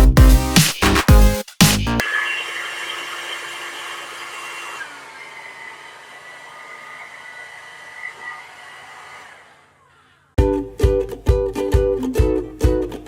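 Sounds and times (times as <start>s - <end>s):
hair dryer running: 2.0s - 9.9s.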